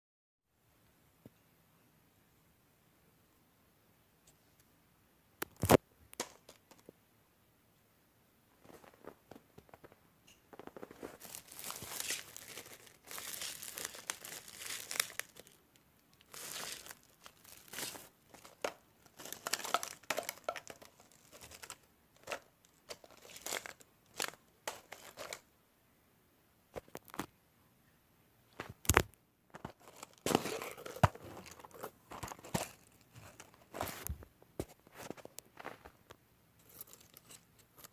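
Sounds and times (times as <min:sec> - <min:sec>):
crinkling handling sounds: 0:08.6 - 0:25.5, 0:26.7 - 0:27.3, 0:28.5 - 0:37.9.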